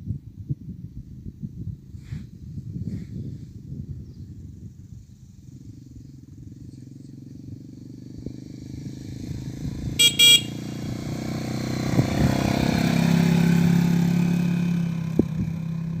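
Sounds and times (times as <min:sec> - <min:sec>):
motorcycle engine running: 0:03.1 - 0:16.0
short horn beeps: 0:10.0 - 0:10.7.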